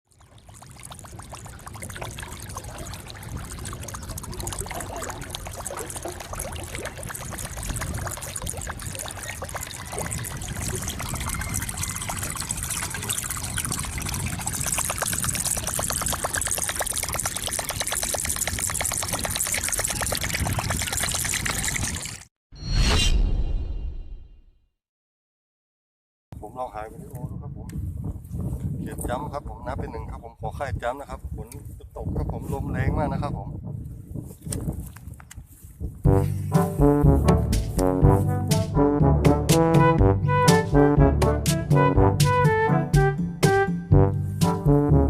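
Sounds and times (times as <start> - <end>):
wind rumbling on microphone: 0.3 - 22.2, 26.4 - 36.3
strong wind gusting: 9.6 - 15.3, 27.0 - 34.9.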